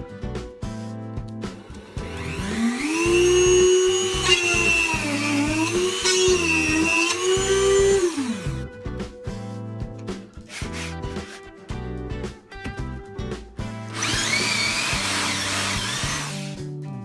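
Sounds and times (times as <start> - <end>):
background music with beat: 0.0 - 4.1, 5.0 - 17.0
rotary tool motor whining: 1.6 - 8.6, 14.0 - 16.5.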